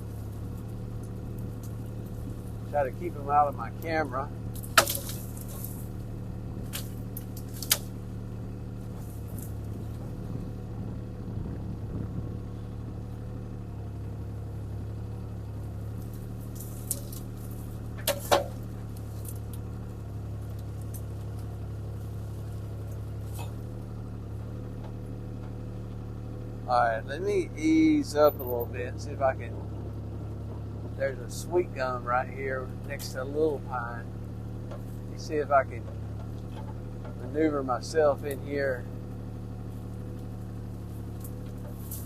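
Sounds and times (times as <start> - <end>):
excavator diesel engine running: 0.0 - 42.0
sharp knocks and snaps: 4.5 - 5.8, 6.6 - 7.9.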